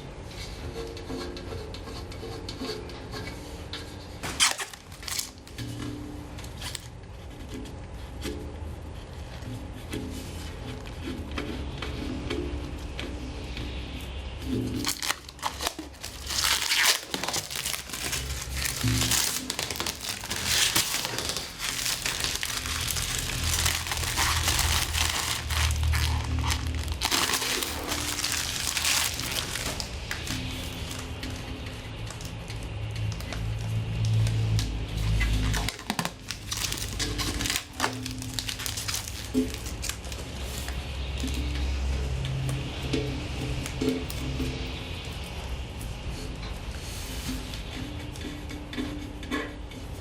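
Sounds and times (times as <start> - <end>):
plastic film crinkling: 4.2 - 5.6, 6.6 - 6.9, 14.8 - 31.0, 35.5 - 40.6
background music: 9.4 - 32.9.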